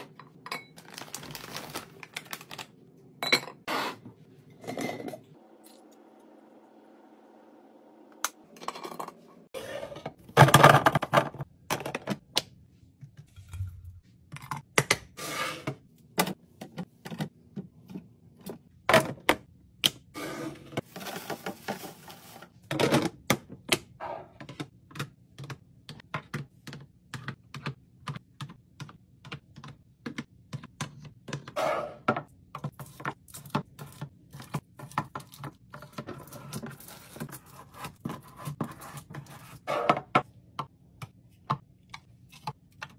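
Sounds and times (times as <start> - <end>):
items clicking and knocking: 10.0 - 12.5, 16.1 - 20.0, 20.7 - 42.9
clatter of items: 10.3 - 12.2.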